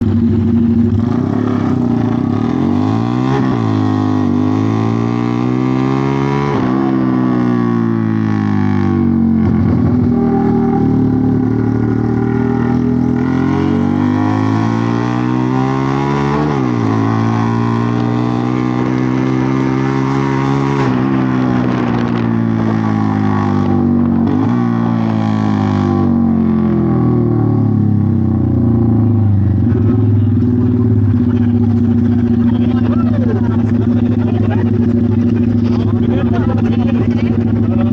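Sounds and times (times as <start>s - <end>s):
engine-like drone sweeping in pitch: 0.0s - 37.9s.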